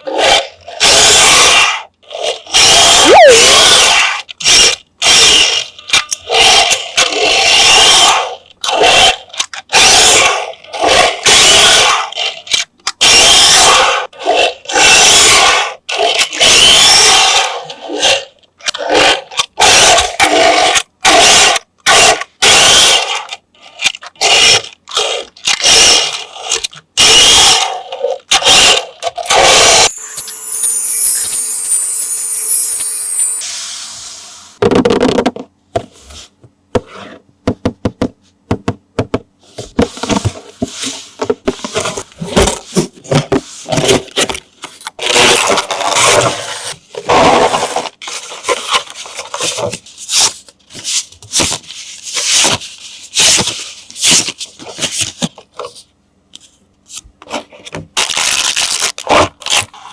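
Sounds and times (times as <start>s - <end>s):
toy car electric motor whirring: 24.2s - 34.2s
steady hissing sound: 33.4s - 34.6s.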